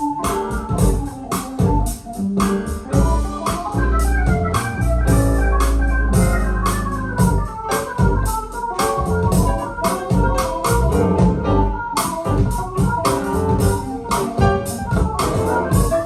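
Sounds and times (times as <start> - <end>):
drum and cymbal hits: 0.0 - 11.4, 12.0 - 16.0
keyboard chords: 0.0 - 16.0
deep bass: 0.5 - 8.4, 9.0 - 16.0.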